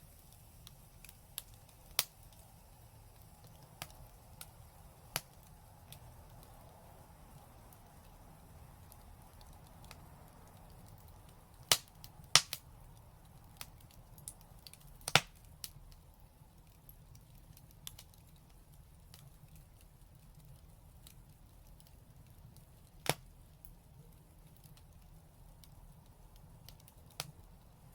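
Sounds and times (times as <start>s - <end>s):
fireplace fire crackling: 0.0s - 27.9s
loud sharp pops of fire: 0.3s - 2.5s, 10.7s - 12.7s, 13.4s - 15.8s, 22.9s - 25.0s.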